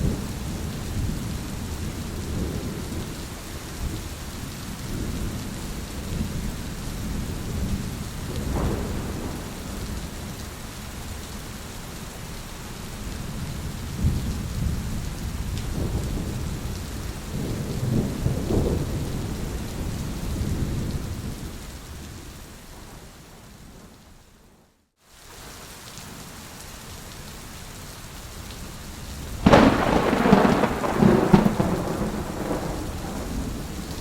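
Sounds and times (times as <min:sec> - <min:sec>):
rolling thunder: 0:00.0 - 0:03.2, 0:04.9 - 0:10.4, 0:13.9 - 0:21.6, 0:29.4 - 0:34.0
steady rain falling: 0:00.0 - 0:34.0.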